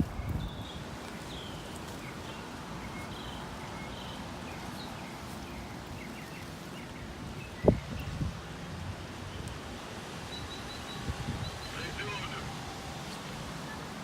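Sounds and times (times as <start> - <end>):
small birds chirping: 0.0 - 8.3, 10.2 - 12.4
gusty wind: 0.0 - 14.0.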